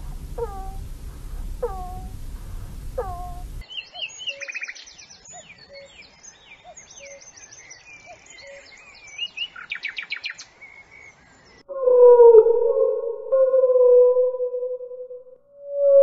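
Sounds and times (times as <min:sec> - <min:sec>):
steady wailing tone: 0:00.0 - 0:03.6
birds chirping and trilling: 0:00.0 - 0:11.6
faint low bird calls: 0:00.0 - 0:13.6.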